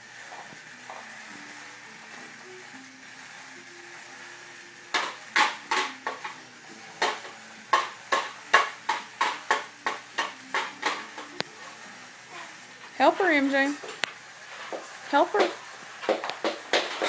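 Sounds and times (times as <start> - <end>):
hard object tapping and clinking: 4.9 - 6.4, 7.0 - 11.5.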